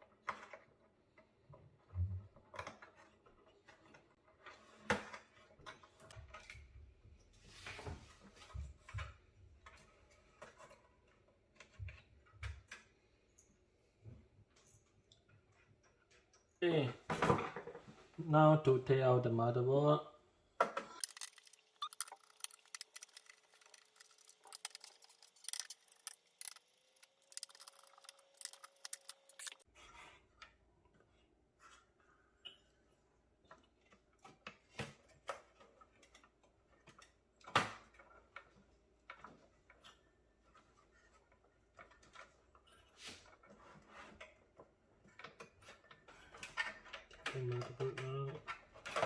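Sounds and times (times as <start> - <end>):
small clicks of screws and metal: 21.0 - 29.7.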